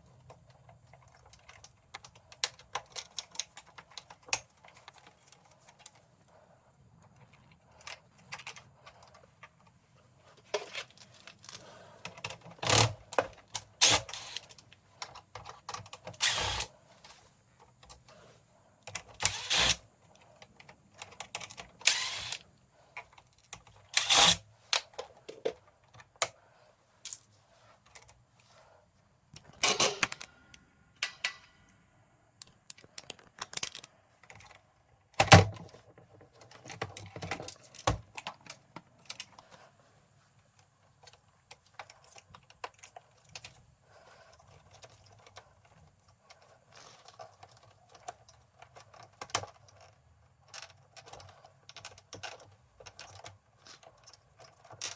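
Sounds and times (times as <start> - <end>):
hand tools clicking and knocking: 10.4 - 16.7, 18.8 - 26.4, 29.4 - 31.6.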